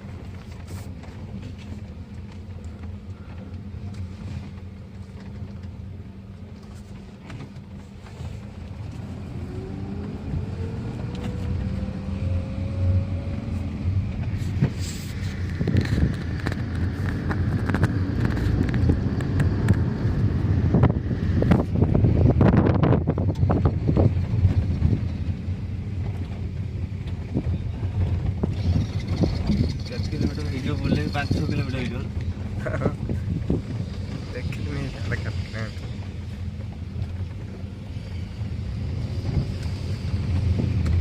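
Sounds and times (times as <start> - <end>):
car engine running: 0.0 - 41.0
road and wind noise: 0.0 - 41.0.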